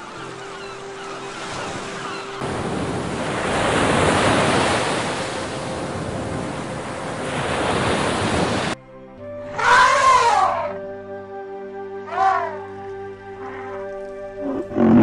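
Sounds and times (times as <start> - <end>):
sea surf washing on beach: 1.4 - 8.8
elephant call: 9.5 - 10.9, 11.8 - 15.0.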